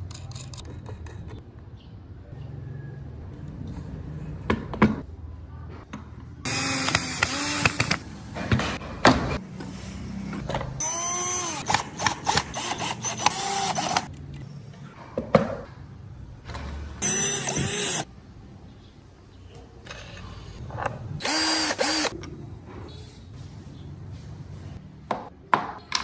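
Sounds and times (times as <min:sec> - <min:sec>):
power tool working wood: 0:06.5 - 0:08.0, 0:10.8 - 0:14.1, 0:17.0 - 0:18.0, 0:21.2 - 0:22.1.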